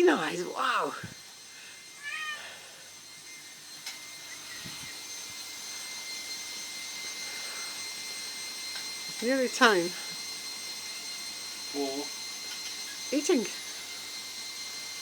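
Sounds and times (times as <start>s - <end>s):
cat meowing: 2.0s - 2.4s.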